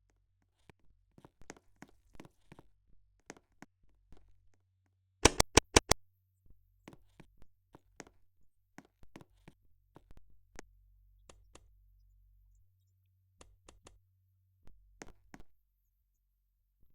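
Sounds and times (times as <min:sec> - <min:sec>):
loud clicks: 0:05.2 - 0:06.0.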